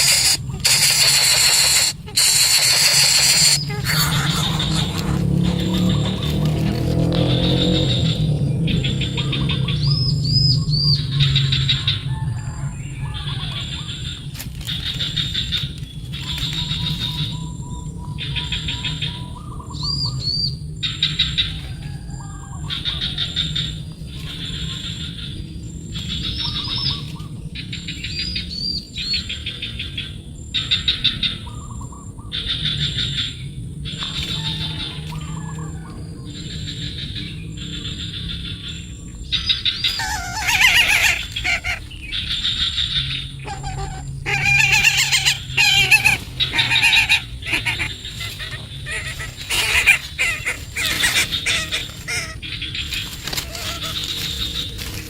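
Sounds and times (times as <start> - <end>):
steady low hum: 0.0 - 19.7
bird chirping in rapid trills: 0.0 - 21.6, 22.6 - 55.0.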